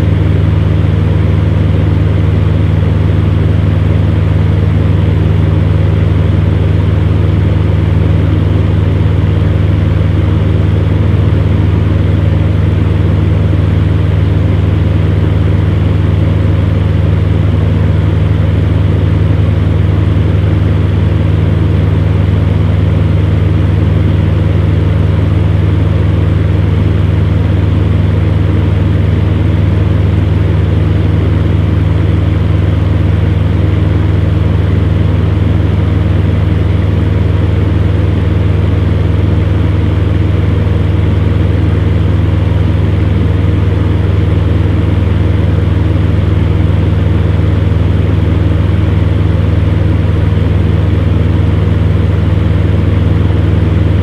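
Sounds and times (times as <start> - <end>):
fan heater humming: 0.0 - 54.0.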